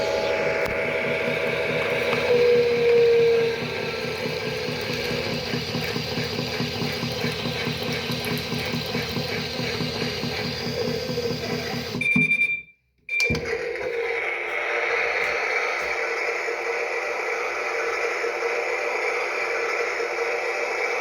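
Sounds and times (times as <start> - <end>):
toy washing machine ticking rattle: 0.0 - 12.3.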